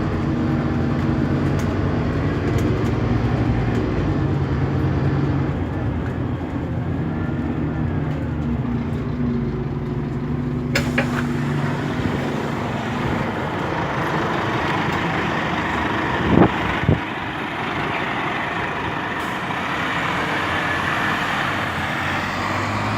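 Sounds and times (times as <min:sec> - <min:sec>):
bus engine hum: 0:00.0 - 0:22.9
broad rushing noise: 0:10.7 - 0:22.9.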